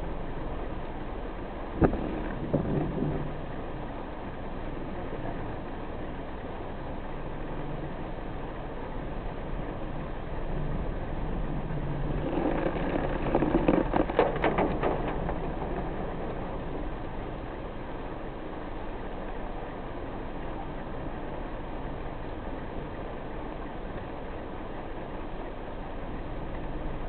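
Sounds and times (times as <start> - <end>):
road noise: 0.0 - 24.8
car engine hum: 0.0 - 27.0
rain rushing: 1.7 - 4.8, 9.9 - 18.8.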